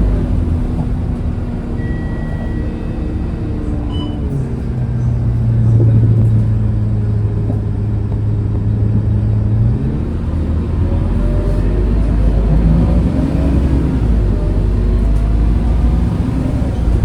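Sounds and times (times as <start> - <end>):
bus engine droning: 0.0 - 17.0.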